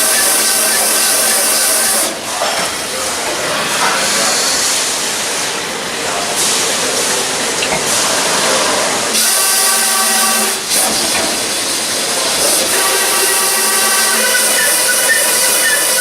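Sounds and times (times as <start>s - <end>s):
high-pressure jet hissing: 0.0s - 2.2s, 9.1s - 16.0s.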